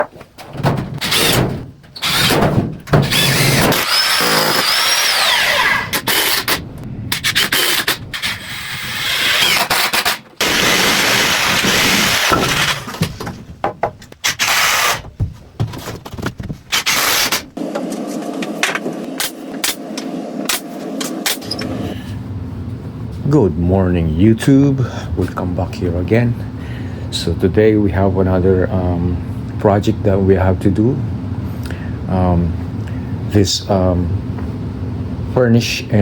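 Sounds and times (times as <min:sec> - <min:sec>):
power tools on wood: 0:01.0 - 0:01.4, 0:02.0 - 0:02.4, 0:03.0 - 0:06.6, 0:07.2 - 0:13.2, 0:14.2 - 0:15.0, 0:16.7 - 0:18.8.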